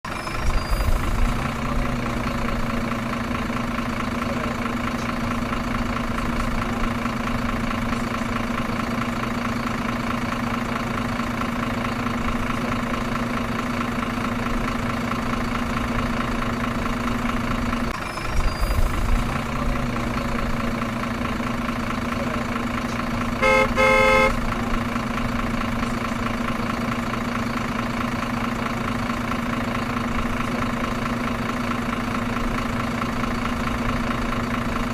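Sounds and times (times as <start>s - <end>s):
truck engine idling: 0.0s - 34.9s
short horn honk: 23.4s - 24.4s.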